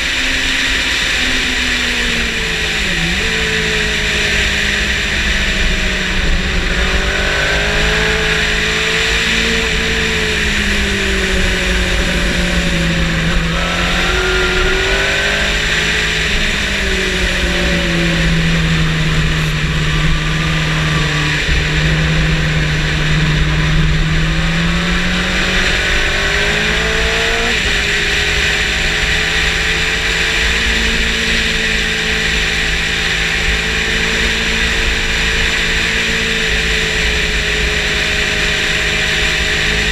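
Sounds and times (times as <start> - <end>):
motorcycle engine at speed: 0.0 - 39.9
wind rush: 2.2 - 29.2.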